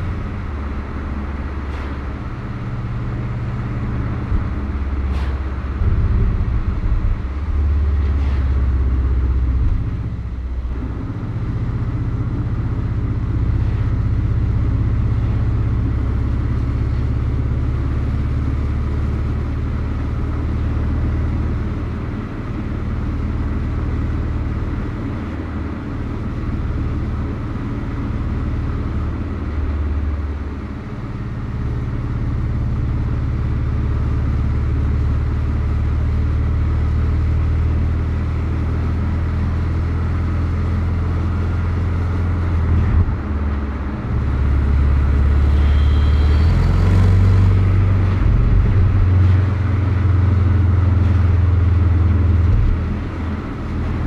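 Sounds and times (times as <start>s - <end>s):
tyre and road noise: 0.0s - 54.0s
car engine running: 37.5s - 54.0s.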